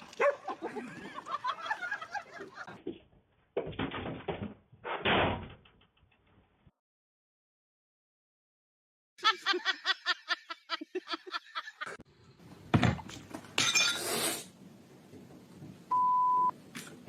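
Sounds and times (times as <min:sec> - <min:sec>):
high-pitched laugh: 0:09.2 - 0:12.0.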